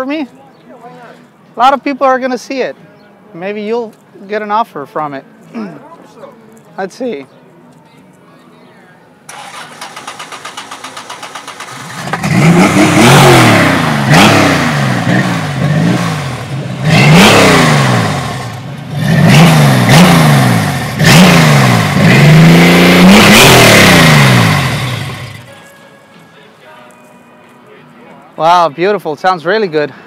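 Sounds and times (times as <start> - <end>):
engine starter cranking: 9.3 - 12.5
engine revving: 9.3 - 25.5.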